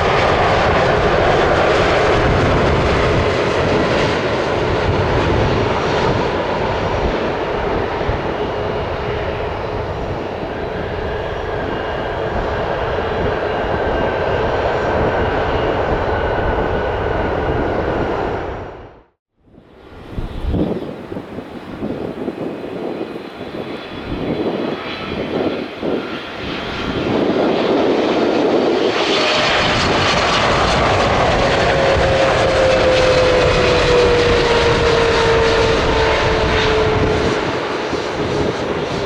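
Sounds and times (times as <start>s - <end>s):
jet airliner rumble: 0.0s - 39.0s
jet engine whine: 0.0s - 39.0s.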